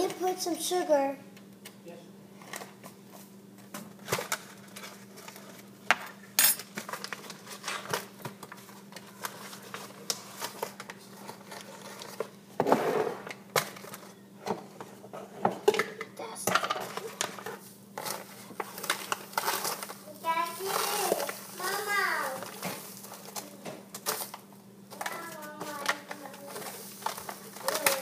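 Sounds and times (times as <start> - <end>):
sugar scraping rustle: 6.7 - 12.4, 16.9 - 28.0.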